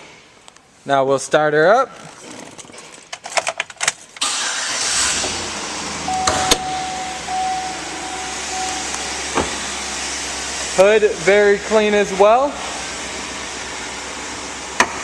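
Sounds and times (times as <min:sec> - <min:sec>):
car engine idling: 0:04.2 - 0:15.0
steady warning tone: 0:05.9 - 0:11.9.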